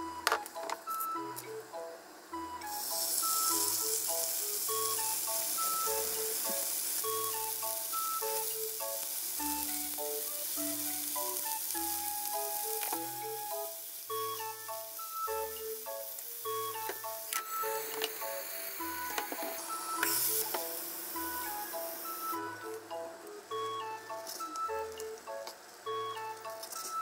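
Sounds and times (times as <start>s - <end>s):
background music with plucked melody: 0.0s - 27.0s
food sizzling in hot oil: 2.6s - 22.8s.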